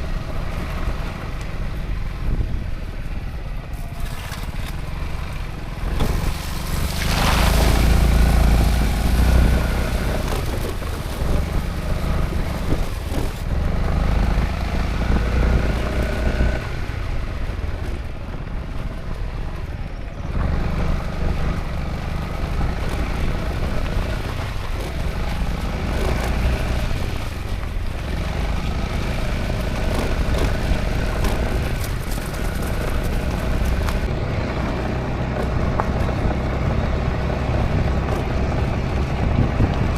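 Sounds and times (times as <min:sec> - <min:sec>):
wind and road noise: 0:00.0 - 0:39.9
scooter engine running: 0:19.8 - 0:39.9.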